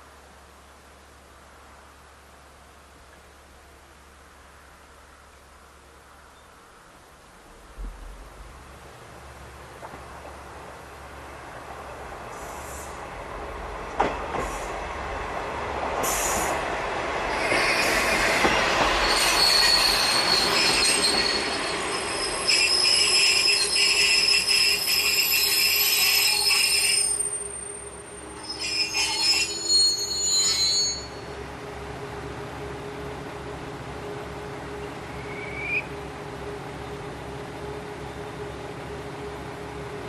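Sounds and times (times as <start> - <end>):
railcar rumbling past: 0.2 - 40.0
train wheels squealing: 17.3 - 31.4, 35.1 - 35.9.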